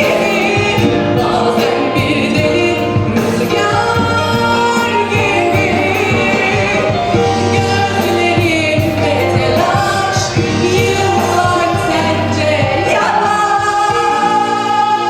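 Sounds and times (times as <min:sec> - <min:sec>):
backing band with steady beat: 0:00.0 - 0:15.0
person singing pop song: 0:00.0 - 0:15.0.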